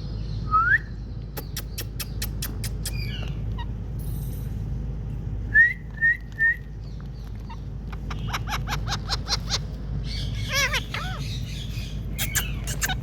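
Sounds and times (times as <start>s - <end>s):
parakeet clicks: 1.4s - 3.4s.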